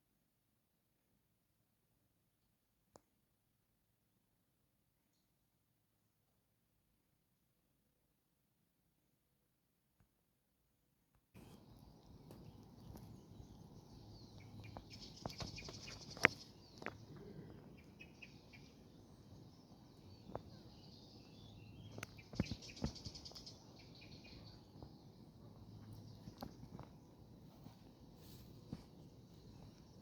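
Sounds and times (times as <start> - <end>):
low outdoor background: 0.1 - 30.0
small birds chirping: 11.4 - 30.0.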